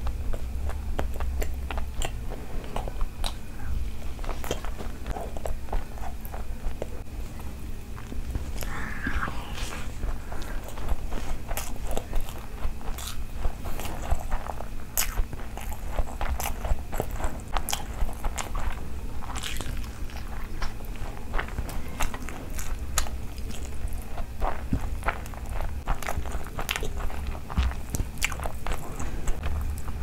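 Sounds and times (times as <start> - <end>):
fingers squishing rice: 0.0 - 30.0
wet chewing: 0.0 - 30.0.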